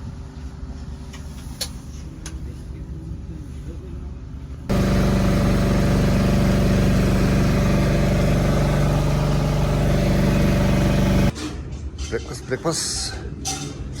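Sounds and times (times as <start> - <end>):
engine running steadily: 4.6 - 11.4.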